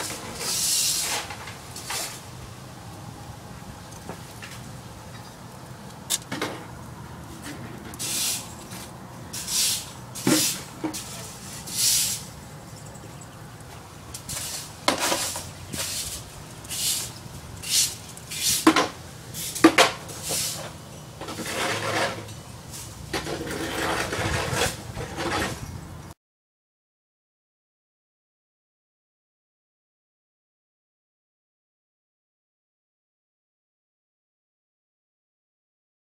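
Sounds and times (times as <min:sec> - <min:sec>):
hand tools scratching brake parts: 0:00.0 - 0:02.3, 0:07.4 - 0:25.8.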